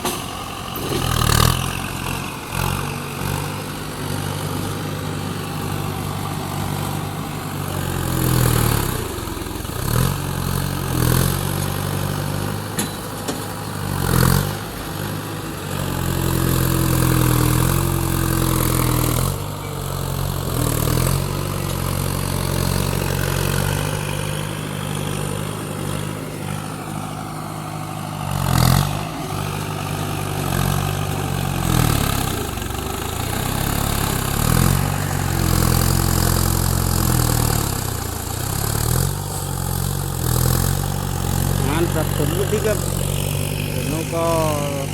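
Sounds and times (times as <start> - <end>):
excavator diesel engine: 0.0 - 44.9.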